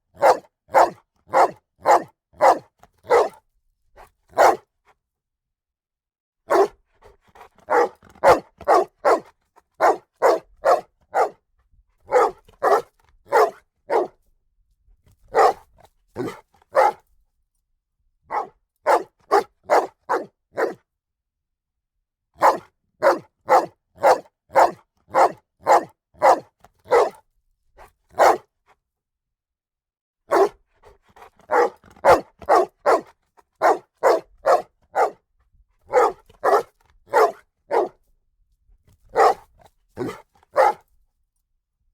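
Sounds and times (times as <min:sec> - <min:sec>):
dog barking: 0:00.1 - 0:03.4, 0:04.3 - 0:04.7, 0:06.5 - 0:11.4, 0:12.1 - 0:14.2, 0:15.3 - 0:17.0, 0:18.3 - 0:20.8, 0:22.4 - 0:27.2, 0:28.1 - 0:28.5, 0:30.3 - 0:35.3, 0:35.9 - 0:38.0, 0:39.1 - 0:40.9.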